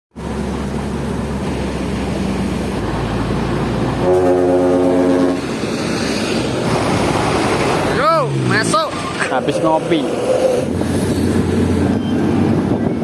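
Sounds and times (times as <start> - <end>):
truck diesel engine running: 0.2 - 12.8
truck horn blast: 4.0 - 5.6.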